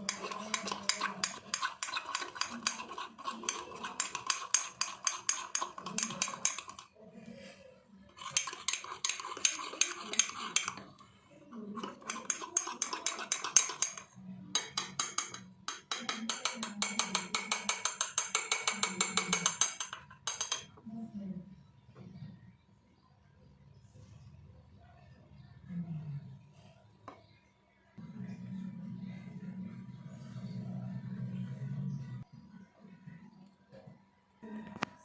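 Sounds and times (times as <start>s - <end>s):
spoon clinking in a mug: 0.0s - 6.9s, 8.2s - 10.9s, 11.8s - 20.8s.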